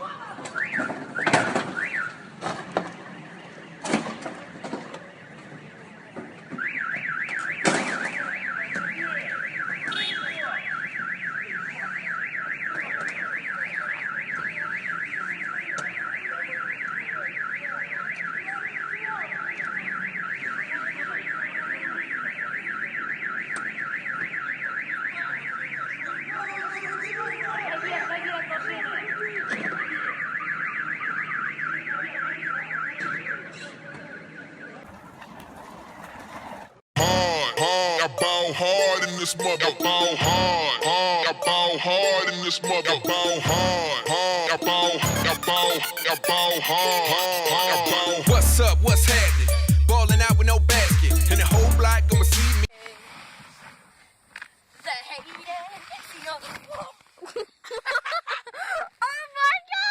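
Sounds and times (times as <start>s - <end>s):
car alarm electronic warble: 0.6s - 2.3s, 6.5s - 36.0s, 37.0s - 52.7s.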